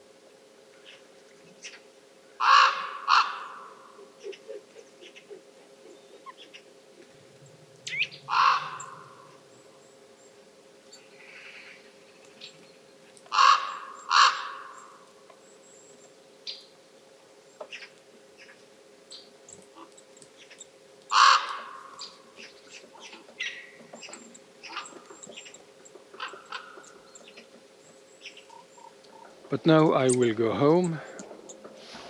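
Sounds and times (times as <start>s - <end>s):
faint steady hum: 0.0s - 32.0s
crow cawing harshly: 2.4s - 3.9s, 8.3s - 9.4s, 13.3s - 15.0s, 21.1s - 22.1s.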